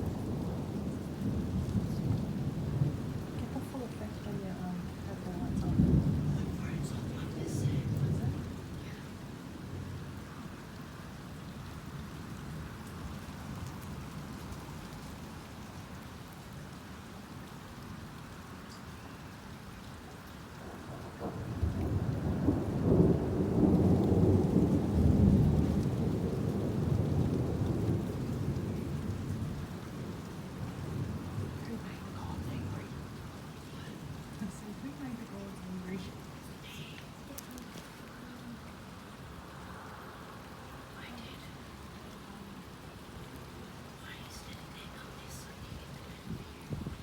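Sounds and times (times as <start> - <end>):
thunder rumbling: 0.0 - 10.6, 20.6 - 47.0
steady rain: 0.0 - 47.0.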